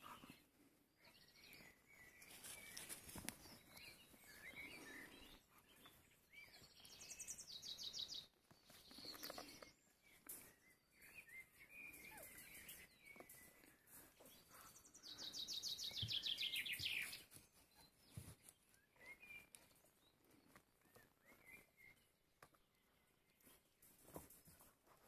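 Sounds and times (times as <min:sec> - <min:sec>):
songbird trill: 0:00.0 - 0:24.7.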